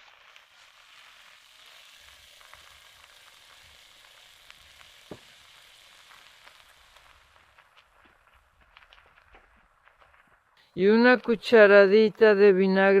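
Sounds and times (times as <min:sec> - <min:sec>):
vegetables sizzling in a frying pan: 0:00.0 - 0:08.5.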